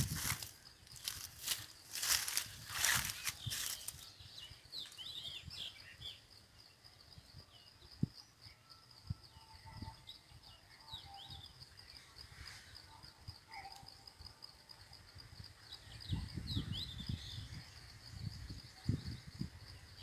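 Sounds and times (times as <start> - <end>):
loud rustling: 0.0 - 4.0
high insect-like drone: 0.0 - 4.2
small birds chirping: 0.0 - 8.6, 15.4 - 20.0.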